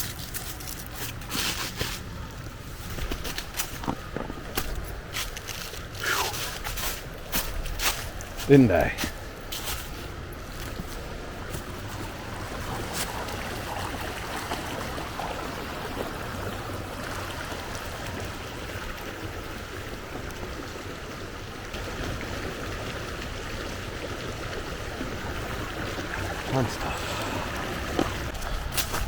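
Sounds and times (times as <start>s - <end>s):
waterfall and creek rushing: 10.6s - 29.0s.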